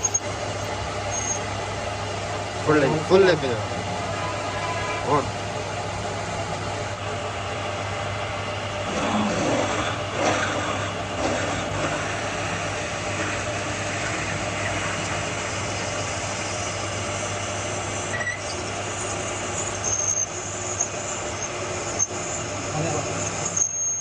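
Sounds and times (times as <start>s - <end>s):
high-pitched squeal: 0.0s - 1.5s, 4.0s - 5.3s, 18.1s - 24.0s
workshop machinery humming: 0.0s - 24.0s.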